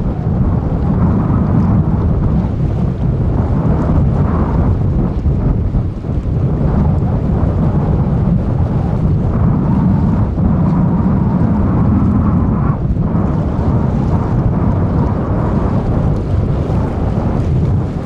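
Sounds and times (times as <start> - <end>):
wind buffeting microphone: 0.0 - 18.0
jet engines rumbling: 5.4 - 18.0.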